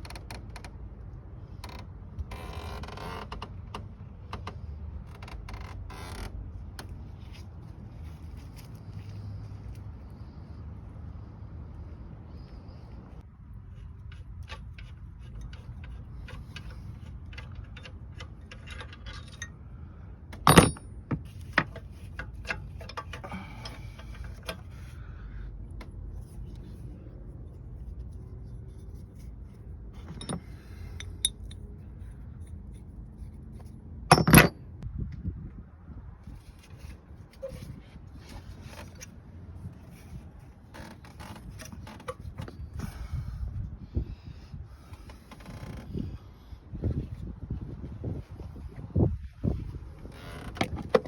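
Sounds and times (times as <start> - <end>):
low steady rumble: 0.0 - 51.0
metallic clinks and taps: 30.0 - 31.6.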